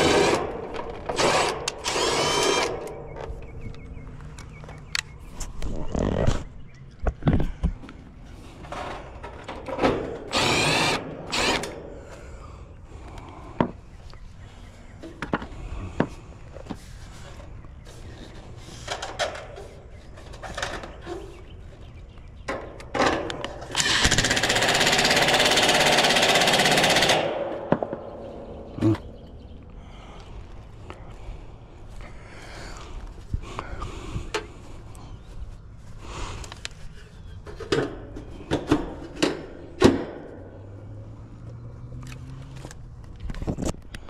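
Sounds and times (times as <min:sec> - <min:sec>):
power drill whining: 0:00.0 - 0:02.8, 0:10.3 - 0:11.8.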